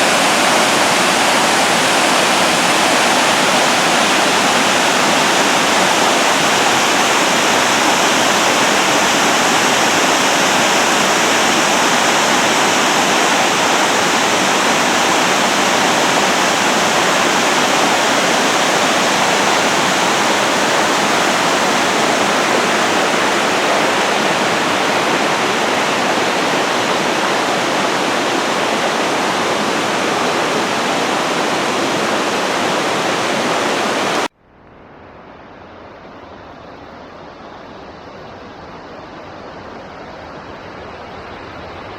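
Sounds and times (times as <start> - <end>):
waterfall rushing: 0.0 - 34.3.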